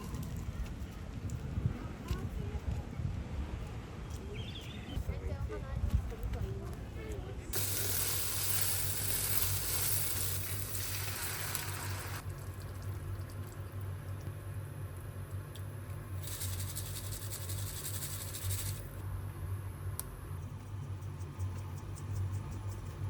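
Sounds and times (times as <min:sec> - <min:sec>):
food sizzling in a pan: 0:07.6 - 0:12.2.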